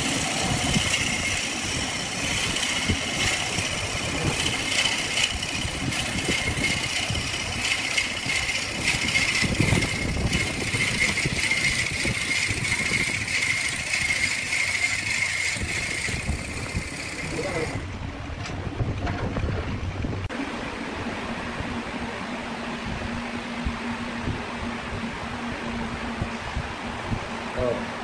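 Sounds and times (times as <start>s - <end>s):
wood lathe whining: 0.0s - 18.0s
rattling clatter: 0.0s - 19.7s.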